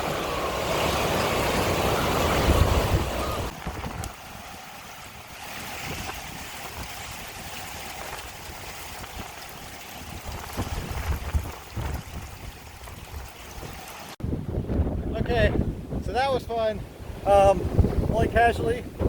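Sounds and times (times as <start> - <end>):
strong wind rushing: 1.4 - 4.2, 10.0 - 19.0
wind buffeting microphone: 1.4 - 4.5, 5.7 - 19.0.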